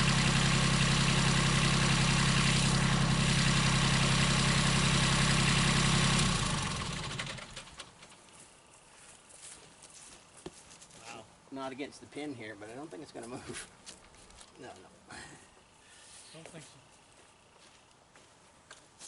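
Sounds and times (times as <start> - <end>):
engine idling and winding down: 0.0 - 8.2.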